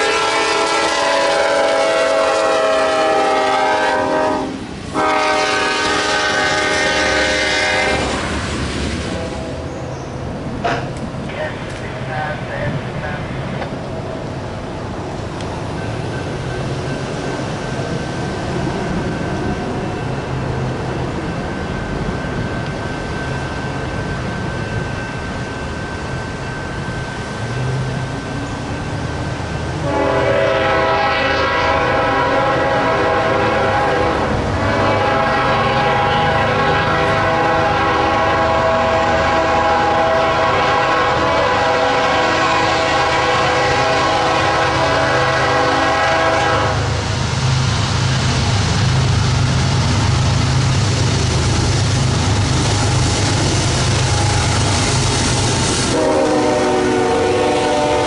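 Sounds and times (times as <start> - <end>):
train air horn: 0.0 - 8.2, 29.8 - 47.0, 55.8 - 58.0
train rumbling past: 0.0 - 58.0.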